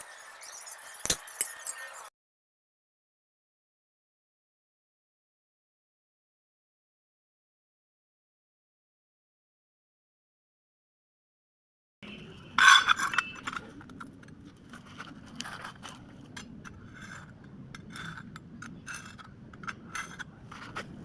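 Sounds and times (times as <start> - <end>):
metal clinking and scraping: 0.0 - 2.1, 12.5 - 21.0.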